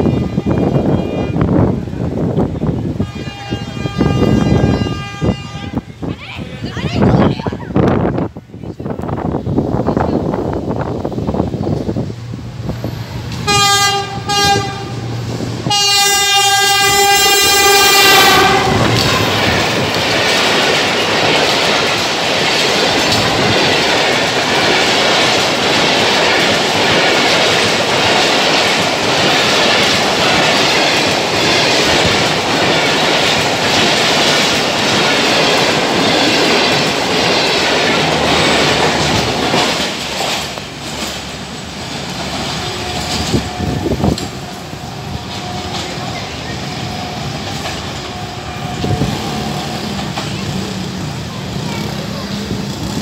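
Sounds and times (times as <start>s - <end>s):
locomotive horn blasts: 3.0s - 5.9s, 13.4s - 19.3s, 42.5s - 49.2s
train wheels clattering over rail joints: 16.6s - 53.0s.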